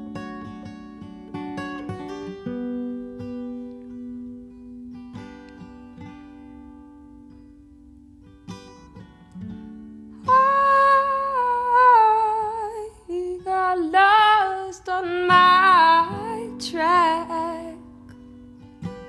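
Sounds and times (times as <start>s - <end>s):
acoustic guitar chords: 0.0s - 19.0s
woman singing wordless melody: 10.2s - 18.2s.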